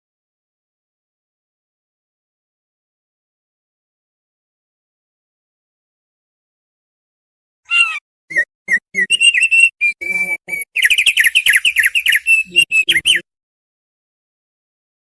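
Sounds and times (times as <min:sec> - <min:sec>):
bird singing and twittering: 0:07.7 - 0:13.2.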